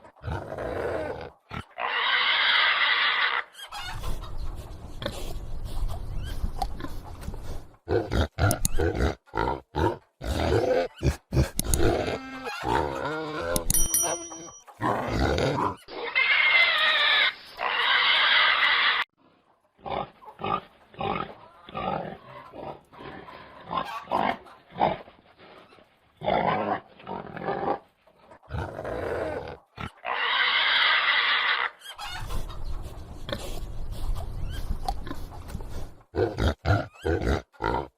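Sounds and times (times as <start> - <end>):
pigs grunting: 0.0 - 4.1, 4.9 - 13.7, 14.8 - 19.0, 19.8 - 32.5, 33.1 - 37.9
pig squealing loudly: 0.3 - 4.0, 11.8 - 13.6, 14.8 - 19.1, 28.6 - 32.4.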